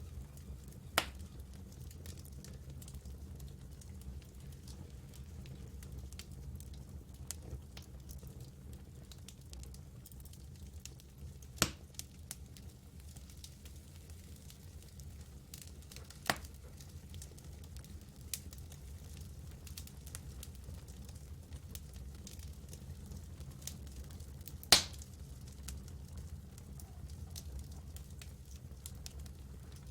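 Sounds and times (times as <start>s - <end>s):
low fire rumble: 0.0s - 29.9s
wood crackling in campfire: 0.0s - 29.9s
sharp fire pops: 1.0s - 1.3s, 11.6s - 12.0s, 15.5s - 16.6s, 24.4s - 25.2s.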